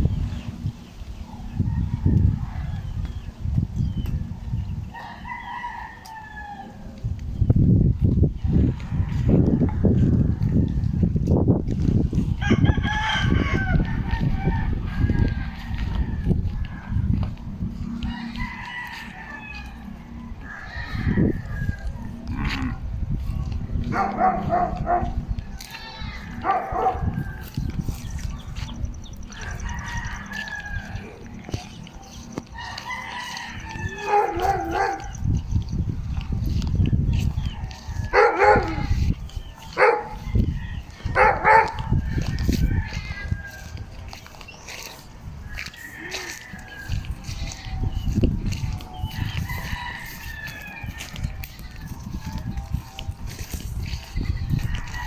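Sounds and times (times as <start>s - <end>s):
rooster crowing: 4.9s - 7.0s, 12.4s - 17.0s, 17.7s - 23.3s, 28.6s - 35.2s, 37.1s - 55.0s
steady low rumble: 6.7s - 20.5s, 21.2s - 45.5s
animal calling: 33.8s - 35.2s.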